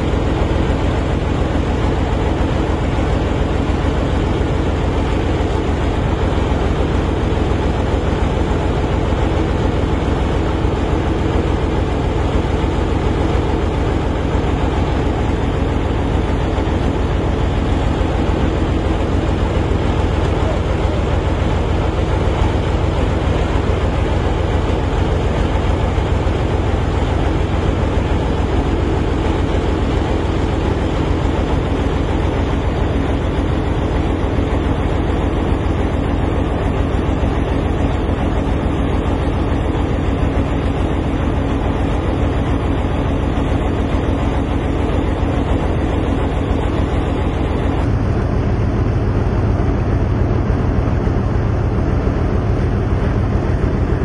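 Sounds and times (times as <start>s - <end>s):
large machine rumbling: 0.0s - 54.0s.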